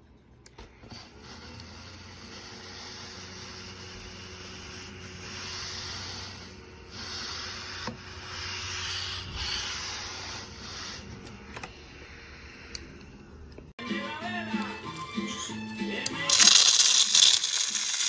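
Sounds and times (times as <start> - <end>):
brush rubbing on countertop: 1.2 - 11.2
mini vacuum humming: 16.3 - 18.0.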